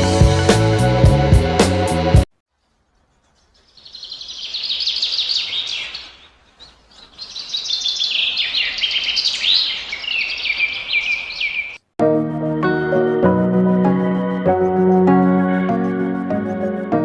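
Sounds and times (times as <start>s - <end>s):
lovebirds chattering: 2.9s - 11.8s.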